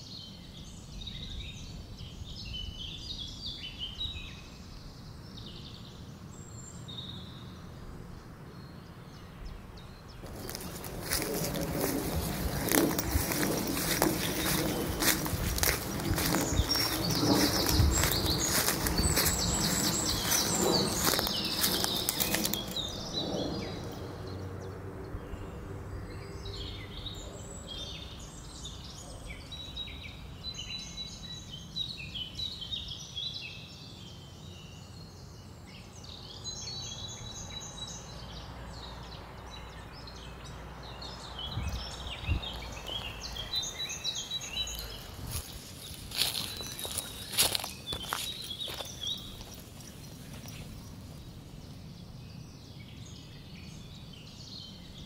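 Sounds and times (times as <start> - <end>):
songbirds chirping and singing: 0.0 - 55.0
footsteps on path: 10.2 - 23.6, 41.8 - 51.1.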